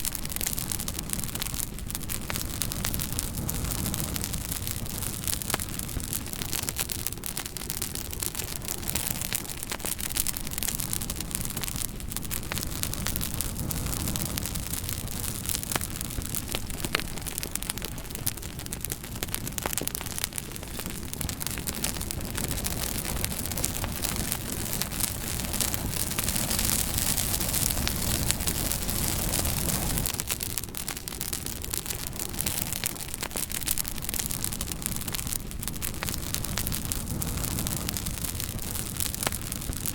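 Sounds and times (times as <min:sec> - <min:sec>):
wood fire crackling: 0:00.0 - 0:39.9
steady rushing hiss: 0:20.0 - 0:39.9.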